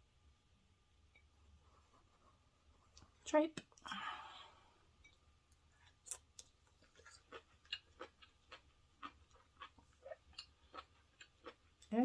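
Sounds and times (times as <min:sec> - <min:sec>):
chewing with mouth clicks: 0:05.8 - 0:11.9.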